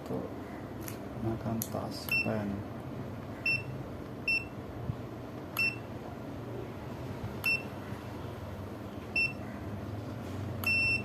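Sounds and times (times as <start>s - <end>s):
low steady hum: 0.0s - 11.0s
multimeter short high beeps: 2.1s - 2.4s, 3.5s - 4.6s, 5.6s - 5.9s, 7.4s - 7.7s, 9.2s - 9.4s, 10.6s - 11.0s.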